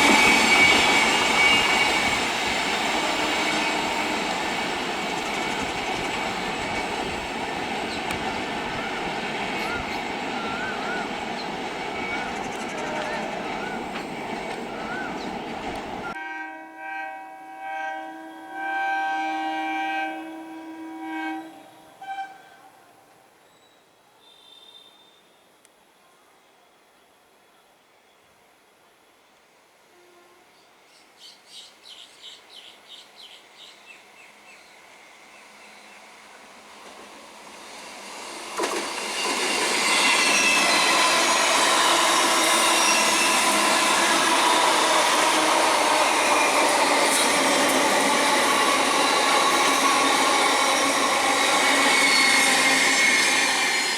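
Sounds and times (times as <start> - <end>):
train horn blasts: 0.0 - 4.8, 16.0 - 23.2, 29.8 - 30.7, 38.6 - 53.9
wheels squealing on rails: 0.0 - 16.2, 32.6 - 53.9
rushing train noise: 0.0 - 23.3, 32.0 - 53.9.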